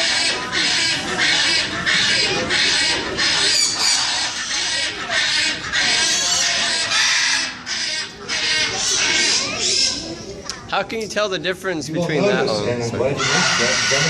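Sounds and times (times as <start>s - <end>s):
parrot squawking: 0.0s - 10.1s, 13.2s - 14.0s.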